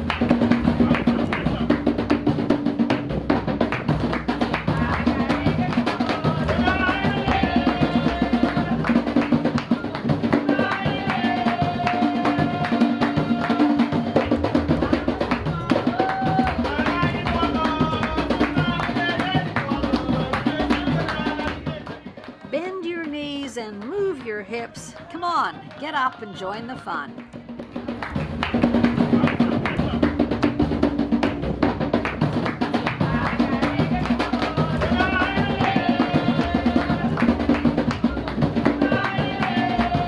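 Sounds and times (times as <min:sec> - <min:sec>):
person singing: 0:22.5 - 0:27.1.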